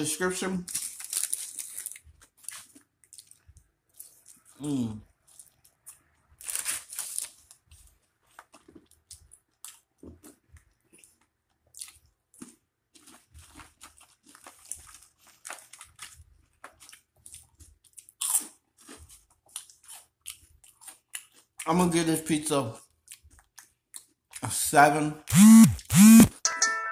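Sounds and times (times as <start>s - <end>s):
crunching of crunchy food: 0.5s - 24.7s
smacking chews: 2.0s - 6.2s, 7.5s - 21.8s, 22.8s - 24.6s.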